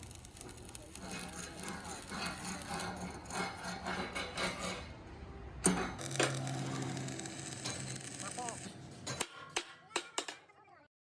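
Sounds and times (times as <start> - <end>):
scraping strokes: 0.0 - 4.9.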